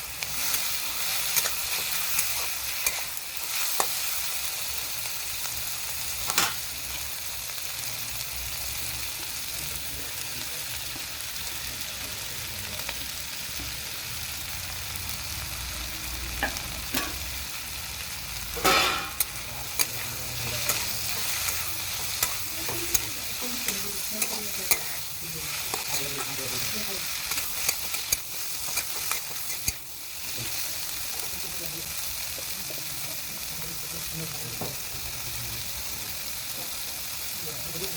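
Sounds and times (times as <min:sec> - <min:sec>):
vegetables sizzling in oil: 0:00.0 - 0:37.9
utensil clinking and scraping pan: 0:00.4 - 0:04.1, 0:18.6 - 0:29.9.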